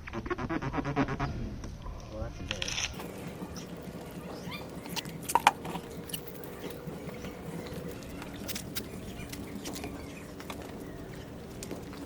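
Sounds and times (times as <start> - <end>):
wet sponge squeaking on car: 0.0 - 1.4.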